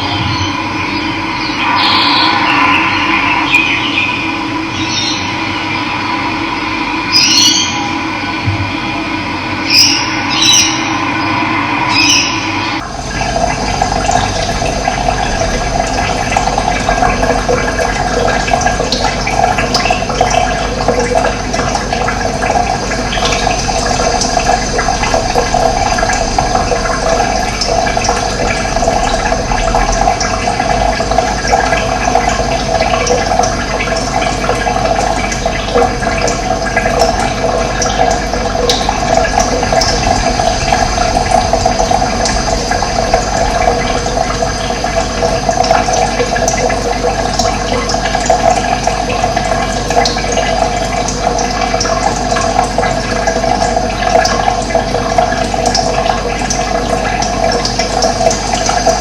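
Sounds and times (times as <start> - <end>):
high bird chirps: 0.0 - 5.7, 7.1 - 7.9, 9.7 - 12.6
running water: 0.0 - 59.0.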